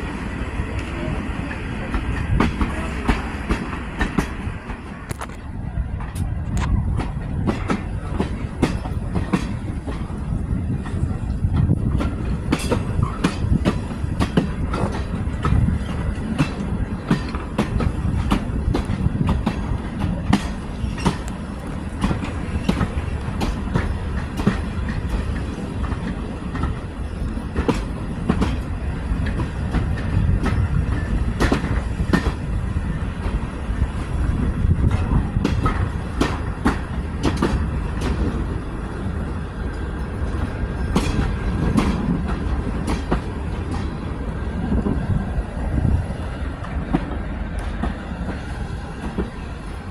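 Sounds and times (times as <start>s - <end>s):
train wheels rumbling: 0.0s - 49.9s
rail joint clicks and knocks: 0.6s - 49.9s.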